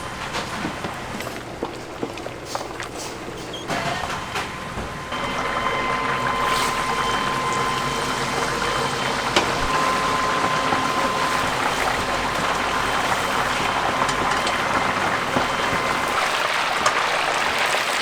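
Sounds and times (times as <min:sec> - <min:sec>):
chicken deep-frying in oil: 0:05.1 - 0:18.0.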